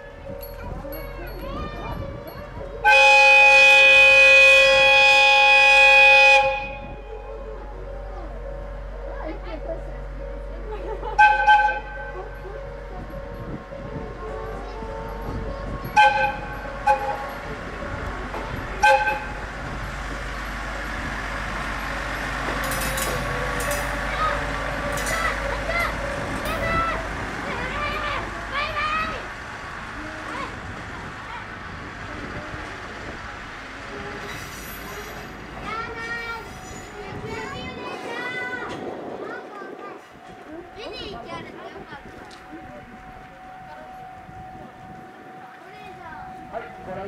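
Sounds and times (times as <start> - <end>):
diesel engine rumble: 0.0 - 47.0
train horn blast: 2.8 - 7.3, 11.2 - 12.2, 15.9 - 17.5, 18.8 - 19.6.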